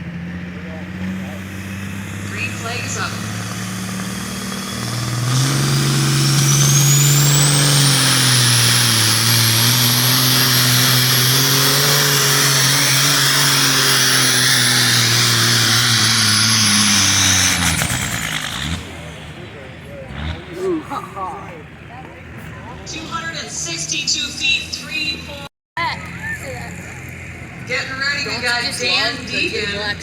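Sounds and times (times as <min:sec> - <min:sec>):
diesel truck engine at full throttle: 0:00.0 - 0:30.0
turbo whine: 0:01.2 - 0:18.8.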